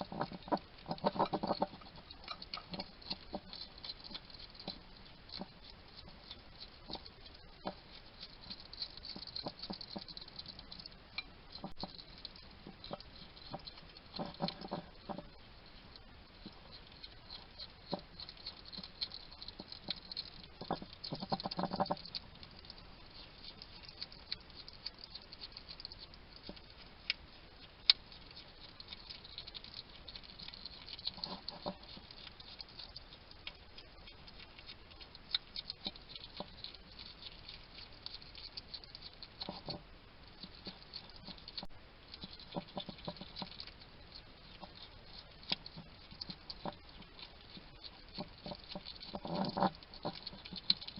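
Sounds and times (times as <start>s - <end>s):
hedgehog chattering: 0.0s - 3.5s, 16.5s - 50.9s
hedgehog crunching food: 0.0s - 50.9s.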